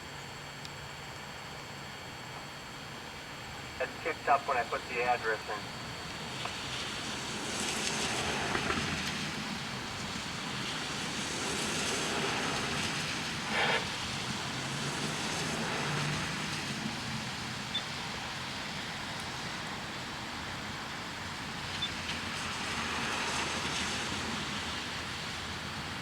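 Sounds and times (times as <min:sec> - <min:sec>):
road traffic passing: 0:03.8 - 0:19.8.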